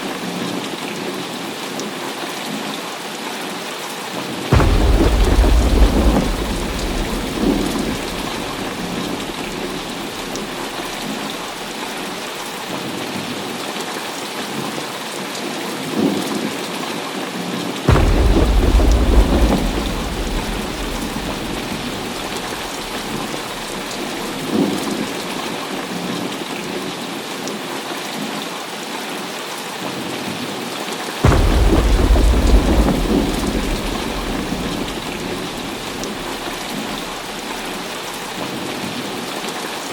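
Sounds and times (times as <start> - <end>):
heavy rain falling: 0.0 - 39.9
rolling thunder: 4.5 - 12.2, 17.9 - 25.9, 31.2 - 39.2.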